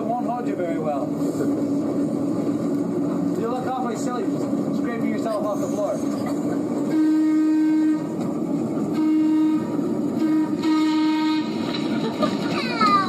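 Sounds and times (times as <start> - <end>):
streetcar running rumble: 0.0 - 13.0
streetcar horn blasts: 6.8 - 11.8.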